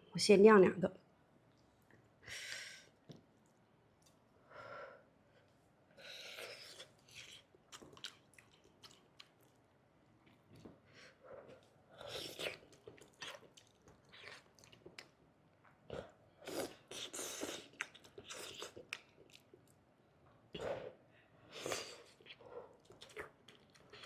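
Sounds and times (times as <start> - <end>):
person chewing and biting: 6.3 - 9.5.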